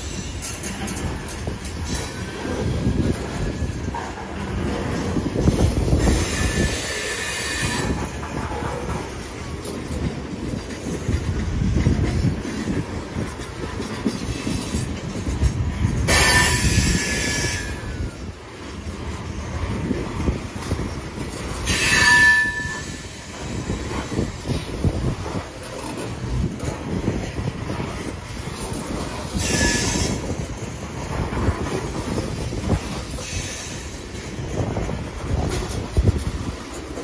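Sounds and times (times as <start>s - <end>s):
train cars rumbling: 0.0s - 37.0s
wheels clattering on rail: 0.0s - 37.0s
metallic wheel squeals: 21.6s - 23.6s, 29.4s - 30.3s.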